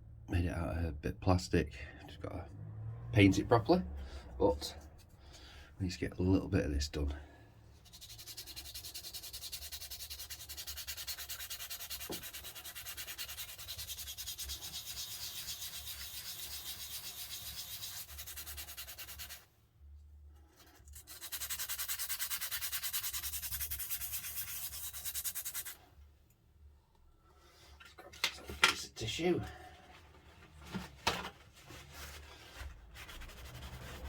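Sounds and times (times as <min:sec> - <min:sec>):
sandpaper rubbing by hand: 0:07.8 - 0:19.5, 0:20.7 - 0:25.8, 0:31.8 - 0:34.0.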